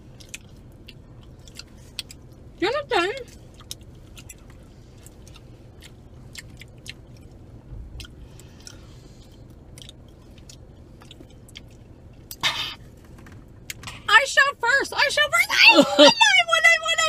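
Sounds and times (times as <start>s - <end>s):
wet sticky chewing: 0.2s - 2.5s, 3.3s - 12.4s.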